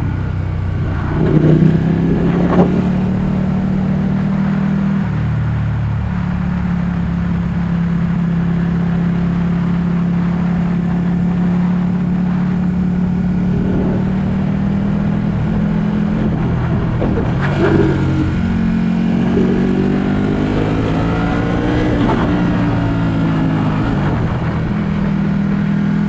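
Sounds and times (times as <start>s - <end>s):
motorcycle engine while riding: 0.0s - 26.0s
wind and road noise: 0.0s - 26.0s.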